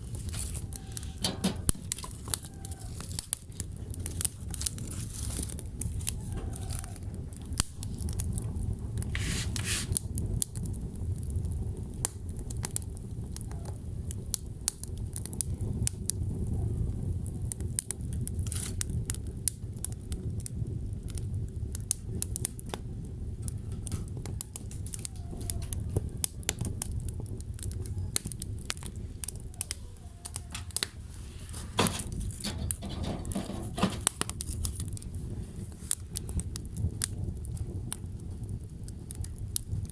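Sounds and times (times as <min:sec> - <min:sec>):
wood fire crackling: 0:00.0 - 0:39.9
hissing rush: 0:09.1 - 0:10.0.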